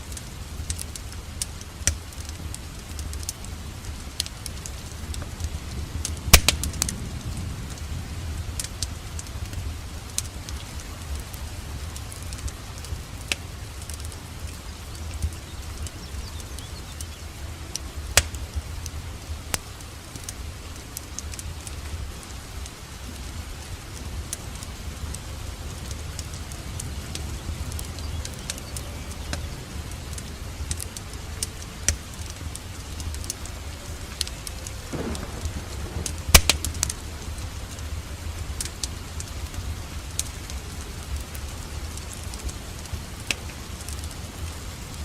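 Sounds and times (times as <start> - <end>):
steady rain hiss: 0.0 - 45.0
wood fire crackling: 0.0 - 45.0
low rumble: 2.3 - 45.0
sharp pops of fire: 6.0 - 7.0, 15.1 - 18.6, 34.9 - 37.8, 42.0 - 44.1.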